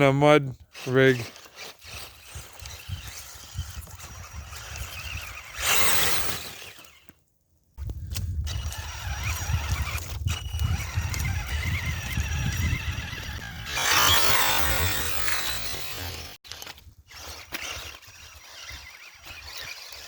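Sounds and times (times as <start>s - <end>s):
high whine of rc motor: 0.7s - 7.2s, 7.8s - 20.0s
wind buffeting microphone: 7.8s - 16.0s.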